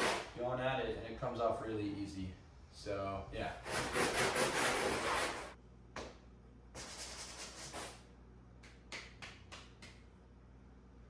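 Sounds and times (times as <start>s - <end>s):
scrubbing pad scraping board: 0.0s - 0.3s, 3.6s - 5.6s.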